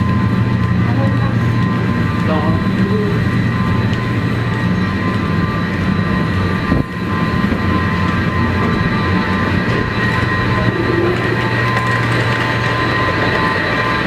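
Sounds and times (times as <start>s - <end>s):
high-pitched tones: 0.0s - 14.0s.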